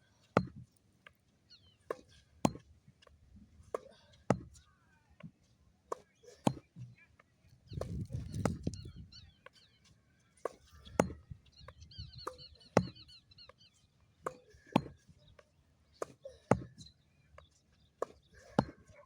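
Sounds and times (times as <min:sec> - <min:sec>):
ball bouncing on court: 0:04.3 - 0:04.6, 0:10.5 - 0:11.3, 0:12.2 - 0:13.0, 0:14.3 - 0:14.9, 0:18.0 - 0:18.8
bird chirping: 0:06.3 - 0:19.0
tennis racket hitting ball: 0:10.5 - 0:11.2, 0:12.3 - 0:13.0, 0:14.2 - 0:14.9.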